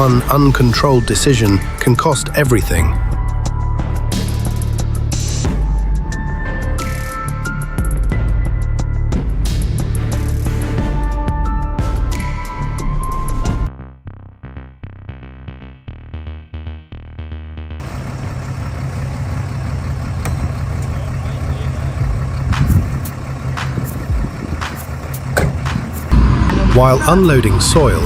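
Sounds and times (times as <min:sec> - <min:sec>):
muffled pulsing rhythm: 0:00.0 - 0:11.0, 0:20.8 - 0:28.0
truck engine running: 0:00.0 - 0:13.6, 0:17.8 - 0:28.0.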